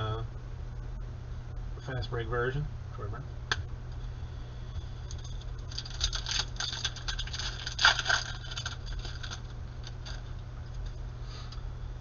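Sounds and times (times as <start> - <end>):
plastic wrapper crinkling: 5.2 - 10.3.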